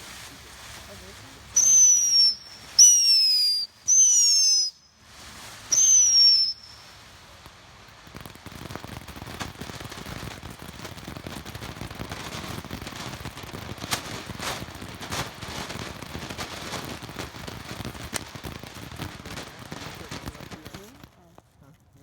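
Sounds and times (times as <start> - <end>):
firework crackling and pops: 0.0 - 22.0
shrill firework whistles: 1.5 - 7.3, 10.8 - 21.0.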